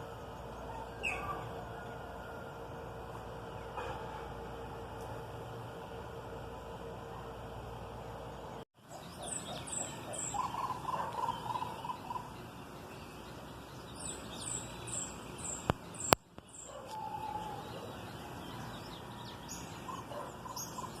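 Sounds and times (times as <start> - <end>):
lower rapid bird trill: 0.0 - 21.0
high bird chirps: 0.4 - 1.5, 8.8 - 21.0.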